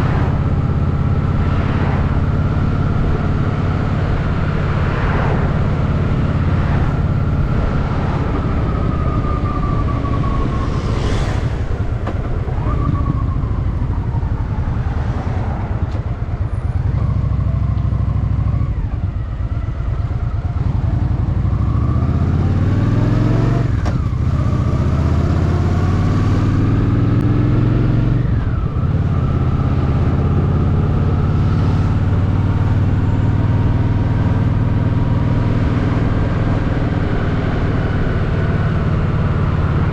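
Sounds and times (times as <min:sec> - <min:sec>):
motorcycle engine revving: 0:15.9 - 0:39.9.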